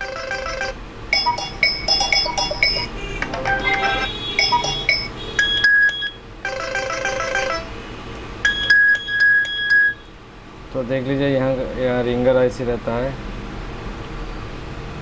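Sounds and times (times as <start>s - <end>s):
chiming ringtone melody: 0.0s - 7.8s, 8.4s - 10.1s.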